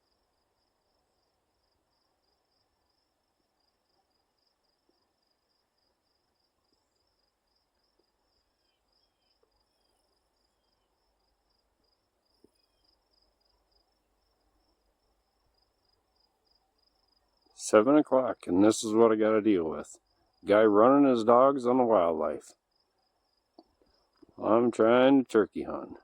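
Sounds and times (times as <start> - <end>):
faint chirps: 2.4 - 17.6.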